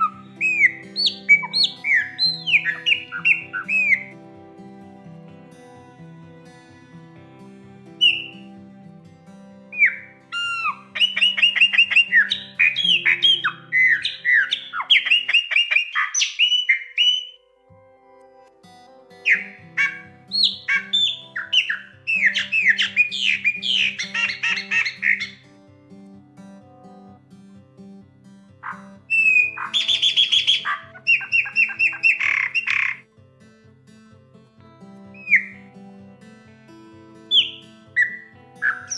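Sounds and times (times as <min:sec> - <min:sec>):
blackbird whistling song: 0:00.0 - 0:04.1, 0:09.8 - 0:17.4, 0:19.3 - 0:25.4
soft background music: 0:00.0 - 0:15.8, 0:16.4 - 0:33.4, 0:34.1 - 0:38.9.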